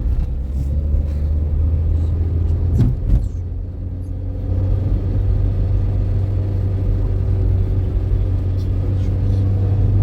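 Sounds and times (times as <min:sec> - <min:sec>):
car engine droning: 0:00.0 - 0:10.0
road noise: 0:00.0 - 0:10.0.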